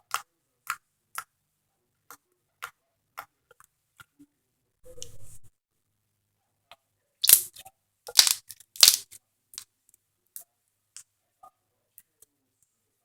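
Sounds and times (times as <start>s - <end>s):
slime crackling: 7.2s - 7.5s, 8.1s - 9.2s
small pops and clicks: 8.1s - 9.2s.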